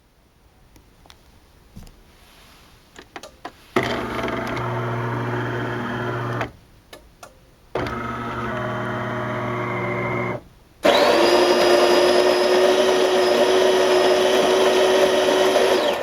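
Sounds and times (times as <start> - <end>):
espresso machine motor whirring: 3.8 - 6.5, 7.8 - 16.0.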